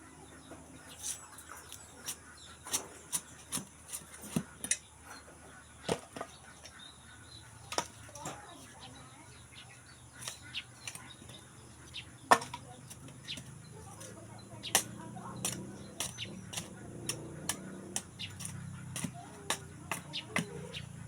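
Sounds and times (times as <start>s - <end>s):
firewood knocking together: 5.9s - 6.3s, 12.3s - 14.1s.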